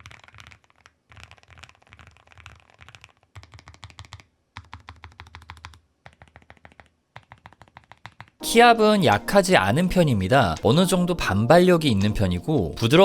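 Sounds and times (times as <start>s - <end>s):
mechanical keyboard typing: 0.0s - 8.4s.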